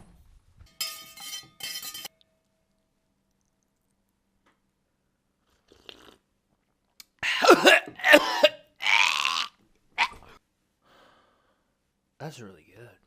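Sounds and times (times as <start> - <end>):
person burping: 7.2 - 10.3
breathy exhale: 10.8 - 11.7.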